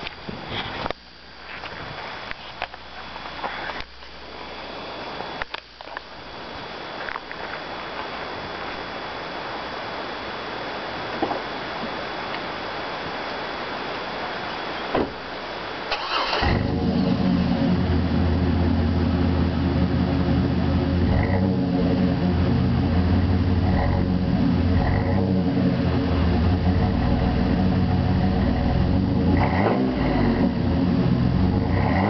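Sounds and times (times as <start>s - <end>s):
car engine cranking and idling: 15.9s - 32.0s.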